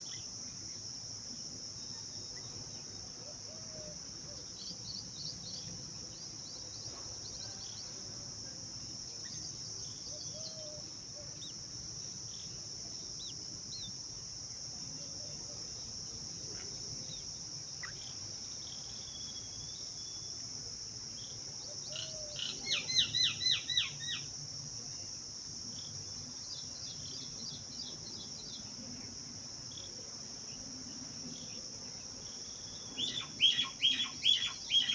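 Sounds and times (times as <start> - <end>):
crickets droning: 0.0 - 34.9
rapid bird chirping: 32.9 - 34.9
bird chirps: 33.0 - 34.9.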